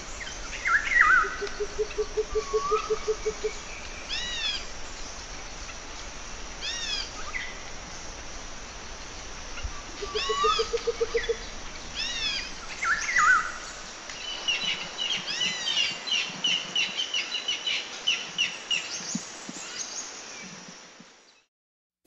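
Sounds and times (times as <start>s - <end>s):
steady background hiss: 0.0s - 21.5s
birds whistling and chirping: 10.0s - 13.6s.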